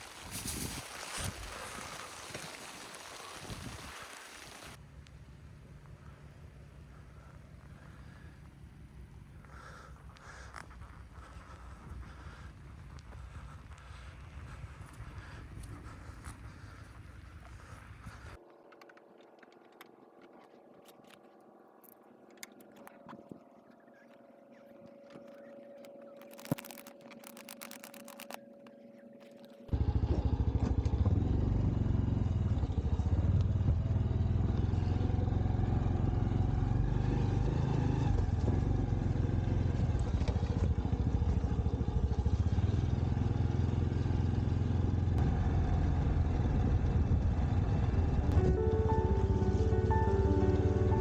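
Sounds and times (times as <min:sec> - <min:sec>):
motorcycle engine and road noise: 0:04.5 - 0:18.4, 0:25.0 - 0:51.0
faint steady hum: 0:04.7 - 0:18.4
clicks: 0:18.2 - 0:23.3, 0:24.8 - 0:29.7.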